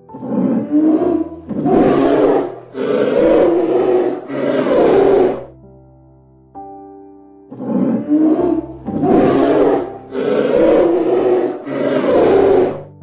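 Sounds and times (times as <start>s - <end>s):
soft background music: 0.0s - 13.0s
large animal growling roars: 0.2s - 5.5s, 7.6s - 13.0s.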